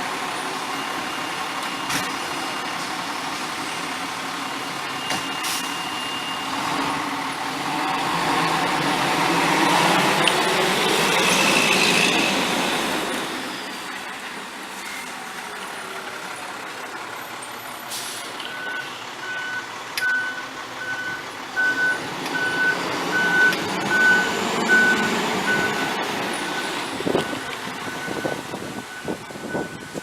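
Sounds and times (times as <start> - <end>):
outdoor traffic noise: 0.0 - 30.0
reversing alarm beeping: 0.4 - 2.8, 4.8 - 6.7, 18.4 - 30.0.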